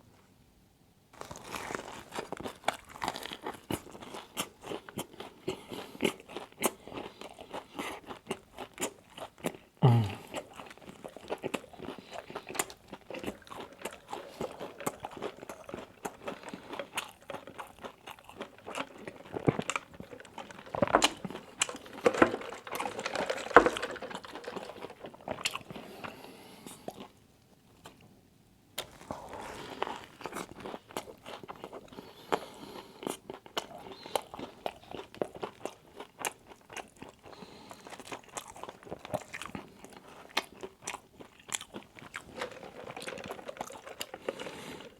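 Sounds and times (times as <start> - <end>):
person chewing crunchy food: 1.2 - 28.0, 28.8 - 44.9.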